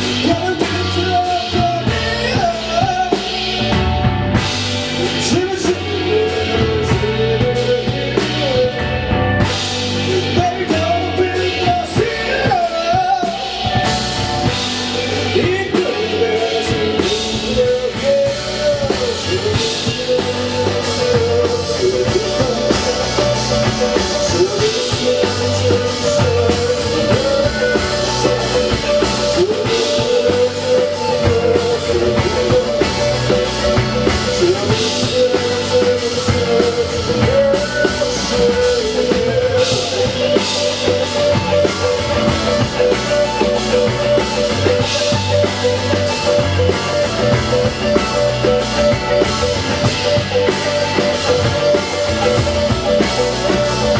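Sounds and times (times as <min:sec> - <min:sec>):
drum kit: 0:00.0 - 0:53.9
guitars: 0:00.0 - 0:53.9
melodic lead guitar line: 0:00.0 - 0:53.9.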